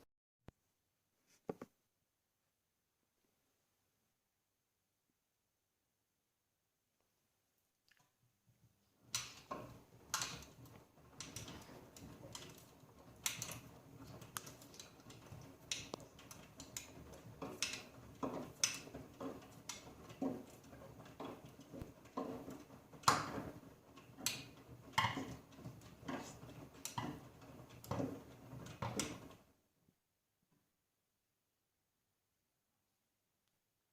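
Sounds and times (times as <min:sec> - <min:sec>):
laundry tumbling in washing machine: 0:09.0 - 0:29.6
splashy knocks and clicks: 0:09.1 - 0:29.4.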